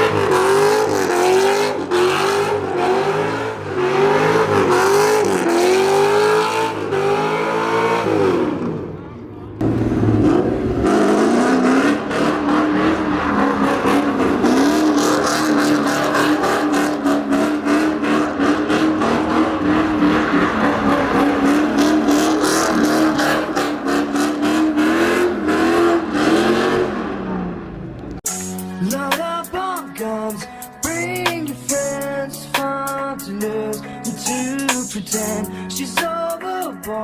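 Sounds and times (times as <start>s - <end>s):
engine at high revs: 0.0s - 9.0s, 9.6s - 28.2s.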